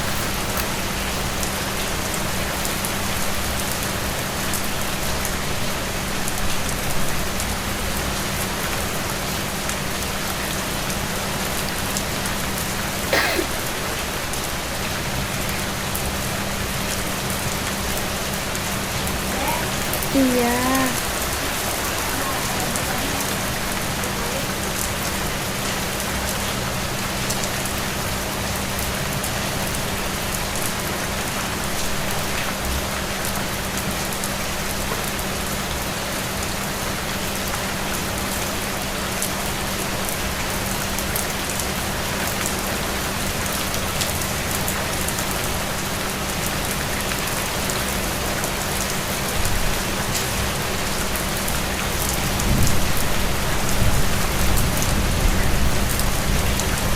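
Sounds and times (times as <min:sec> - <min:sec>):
steady rain falling: 0:00.0 - 0:56.9
drops clicking: 0:41.1 - 0:41.6.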